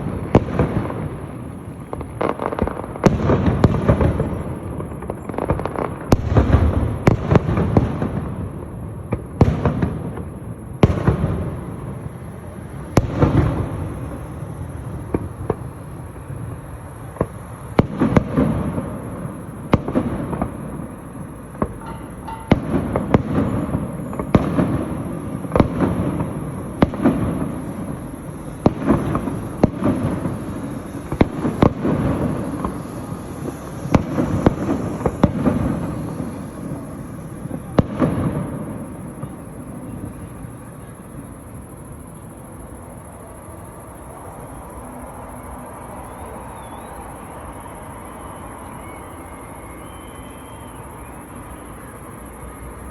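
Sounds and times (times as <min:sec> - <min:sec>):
firework shells bursting: 0:17.2 - 0:40.4.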